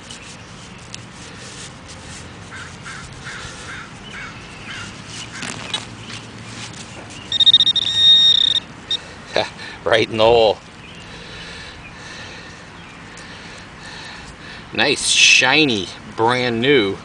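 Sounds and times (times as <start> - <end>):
metal detector pulsing beep: 7.3 - 9.0.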